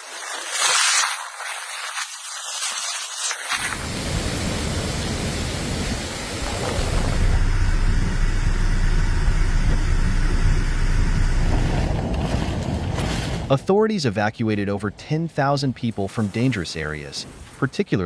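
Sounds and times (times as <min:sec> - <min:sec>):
wind buffeting microphone: 0:03.6 - 0:07.4
strong wind blowing: 0:03.6 - 0:07.5.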